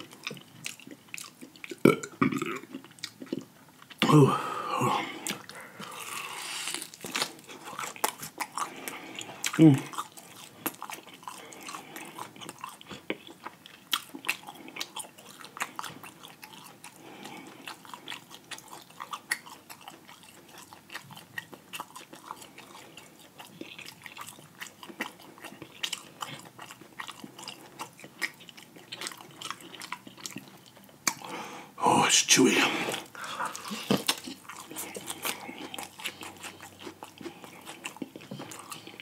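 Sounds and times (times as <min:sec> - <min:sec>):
wet chewing clicks and smacks: 0:00.0 - 0:04.0, 0:05.2 - 0:31.3, 0:32.9 - 0:39.0.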